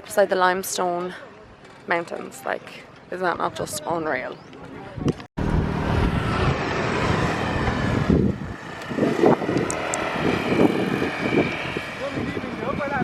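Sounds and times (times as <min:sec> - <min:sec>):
wind buffeting microphone: 0:04.8 - 0:13.0.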